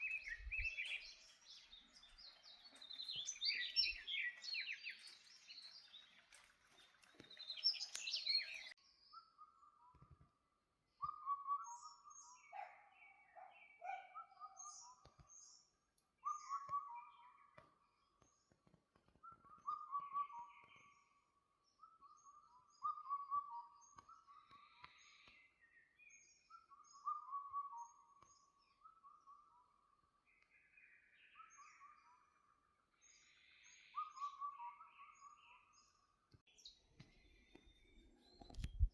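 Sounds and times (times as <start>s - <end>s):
high bird chirps: 0.0s - 6.2s
birds singing: 0.0s - 10.2s, 10.9s - 18.6s, 19.2s - 38.9s.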